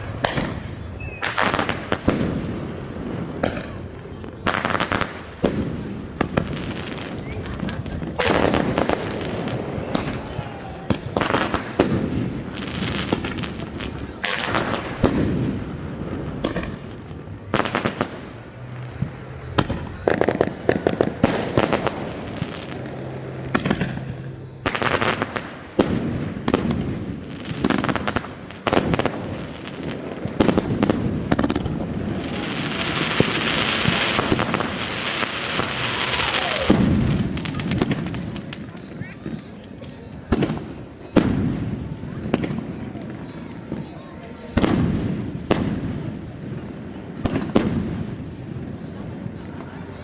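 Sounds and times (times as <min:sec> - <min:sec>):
firework crackling: 0:00.0 - 0:50.0
firework shells bursting: 0:19.5 - 0:39.7.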